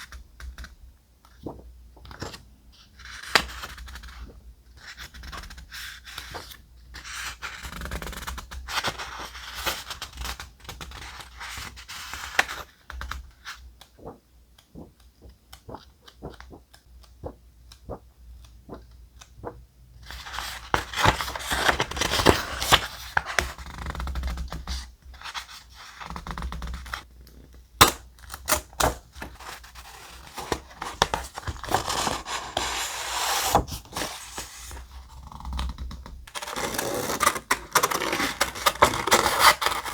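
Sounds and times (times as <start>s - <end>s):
thick paper rustling and scraping: 20.2s - 23.6s, 28.9s - 34.9s, 36.3s - 39.9s.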